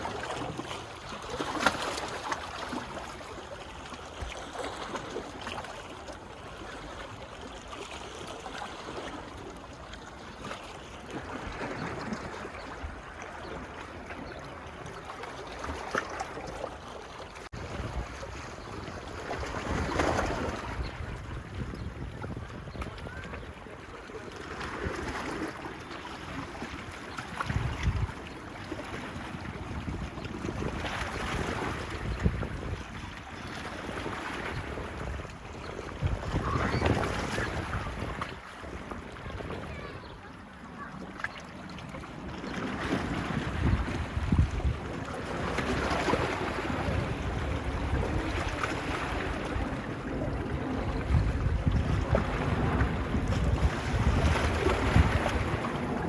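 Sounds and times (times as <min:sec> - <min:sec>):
small waves washing on beach: 0:00.0 - 0:56.0
wind buffeting microphone: 0:17.5 - 0:25.6, 0:26.4 - 0:40.3, 0:42.2 - 0:56.0.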